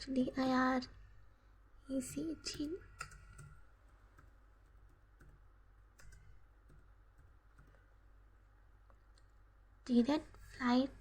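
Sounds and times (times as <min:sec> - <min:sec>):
computer keyboard keystrokes: 0:02.1 - 0:07.9.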